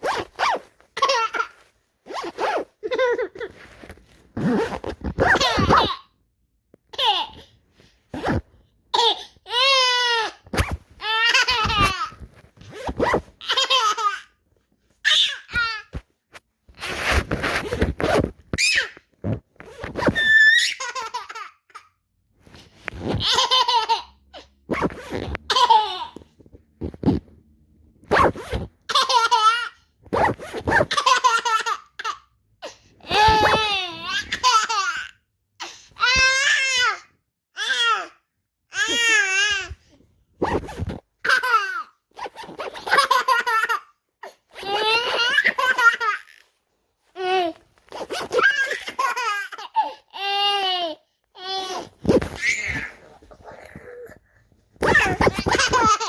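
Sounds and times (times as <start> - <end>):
zipper strokes: 0.0 - 5.9, 7.8 - 8.6, 10.5 - 11.0, 11.7 - 13.5, 15.9 - 20.5, 22.4 - 23.3, 24.6 - 25.5, 26.4 - 27.4, 28.0 - 28.9, 30.0 - 31.0, 40.4 - 41.2, 42.1 - 43.0, 47.8 - 48.6, 51.8 - 54.1, 54.8 - 56.0
baby laughing: 0.9 - 1.7, 2.6 - 3.6, 5.2 - 6.2, 6.9 - 7.5, 8.9 - 10.4, 11.0 - 12.2, 13.4 - 14.4, 15.0 - 15.9, 20.3 - 21.9, 23.1 - 24.5, 25.4 - 26.2, 28.9 - 29.8, 30.8 - 32.3, 33.0 - 35.2, 38.7 - 39.7, 41.2 - 46.5, 47.2 - 54.2, 54.8 - 56.0.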